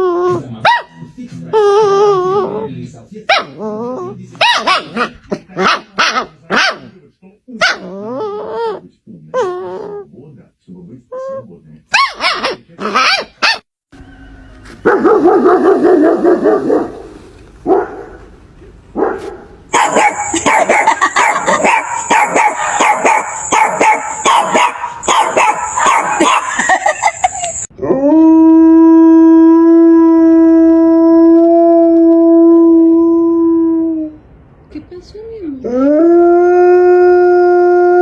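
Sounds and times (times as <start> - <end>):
dog barking: 0.6 - 1.0, 4.4 - 6.9, 7.6 - 7.9, 11.9 - 13.6, 14.8 - 18.2, 19.0 - 27.7
dog howling: 19.7 - 34.2.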